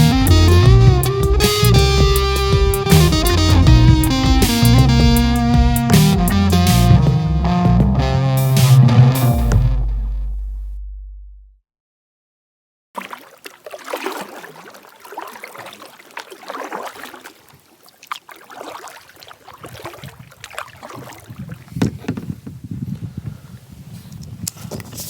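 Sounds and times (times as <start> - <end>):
deep rumble: 0.0 - 11.6
water splashing and sloshing: 13.0 - 22.8.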